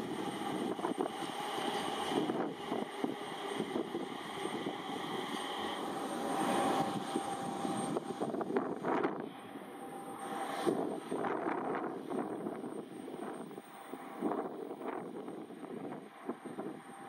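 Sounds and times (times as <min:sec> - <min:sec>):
electric train running on rails: 0:00.0 - 0:17.0
jet aircraft engines whining: 0:00.0 - 0:17.0.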